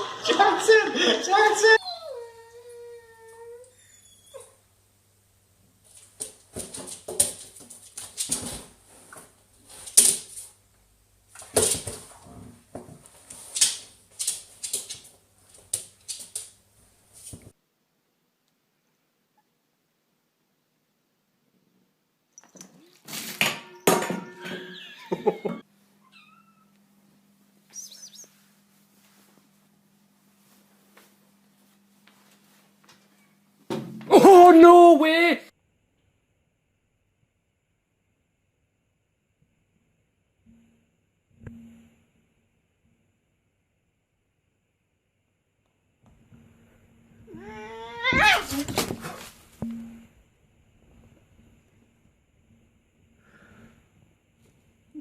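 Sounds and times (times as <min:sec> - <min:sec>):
dog whining: 0:01.7 - 0:04.6, 0:47.3 - 0:49.2
cat meowing: 0:26.1 - 0:26.7, 0:47.3 - 0:48.7
low steady hum: 0:35.7 - 0:55.0.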